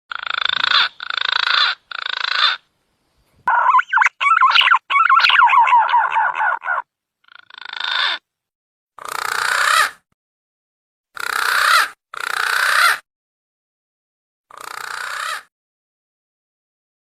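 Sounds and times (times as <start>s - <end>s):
wavering pigeon lure calls: 3.5s - 6.8s.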